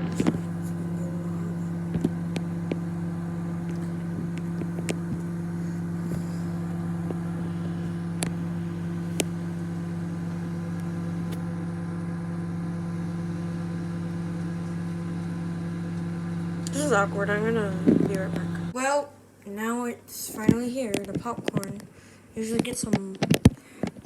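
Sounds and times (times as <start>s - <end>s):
popcorn popping: 0.0s - 18.8s
microwave oven humming: 0.0s - 22.6s.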